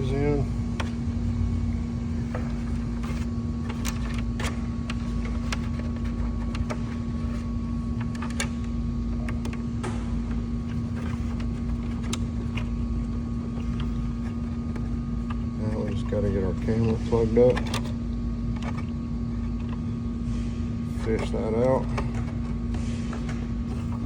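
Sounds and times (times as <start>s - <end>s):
low mechanical hum: 0.0s - 24.0s
parts clicking and tapping: 2.2s - 19.8s.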